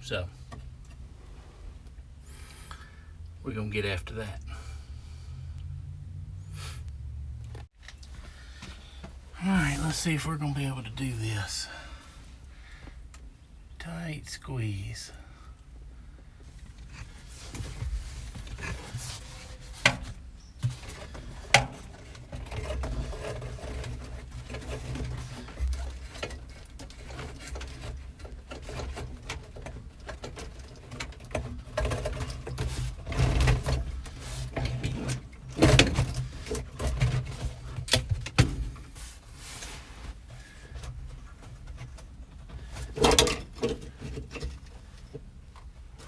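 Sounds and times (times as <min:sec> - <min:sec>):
vent hose rustling and scraping: 0:07.8 - 0:13.0, 0:16.4 - 0:46.0.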